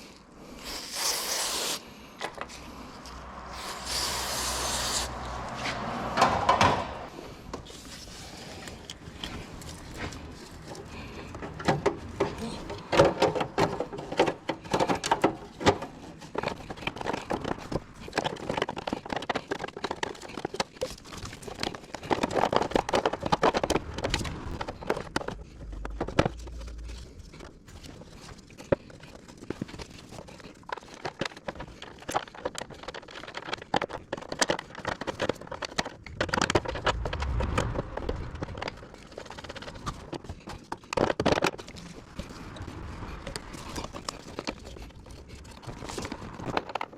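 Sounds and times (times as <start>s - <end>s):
tools and parts clattering: 6.0s - 36.7s.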